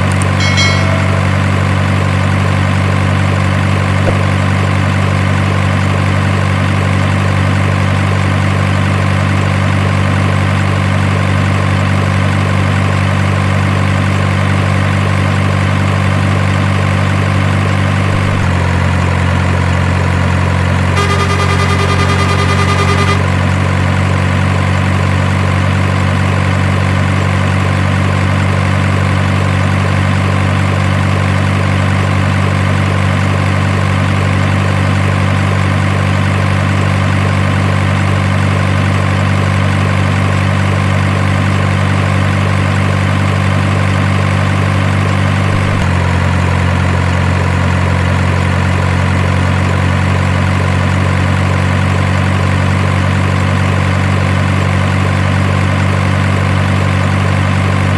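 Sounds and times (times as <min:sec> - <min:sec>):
truck engine idling: 0:00.0 - 0:37.8.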